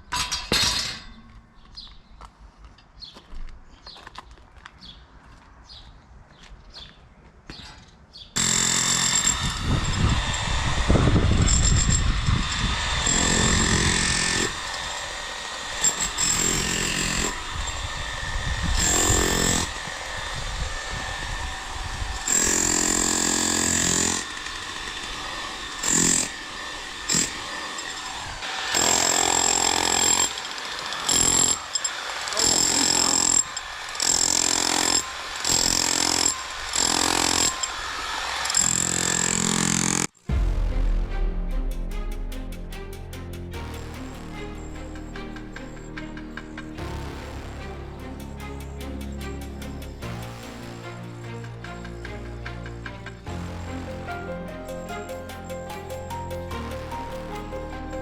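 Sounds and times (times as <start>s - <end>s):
jackhammer breaking concrete: 8.4s - 18.0s, 18.8s - 20.0s, 22.1s - 37.8s, 38.4s - 40.2s.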